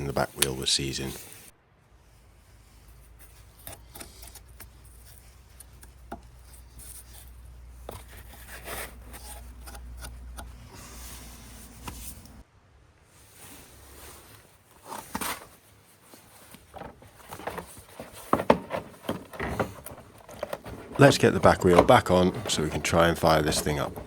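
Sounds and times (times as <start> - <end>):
rubbing and scraping: 0.0 - 12.4, 13.3 - 24.0
light clicks and knocks: 16.5 - 24.0.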